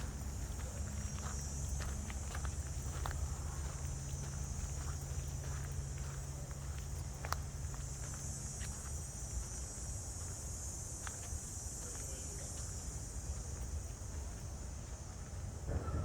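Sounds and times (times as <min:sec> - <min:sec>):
crickets chirping: 0:00.0 - 0:16.0
footsteps clicking: 0:00.2 - 0:09.5.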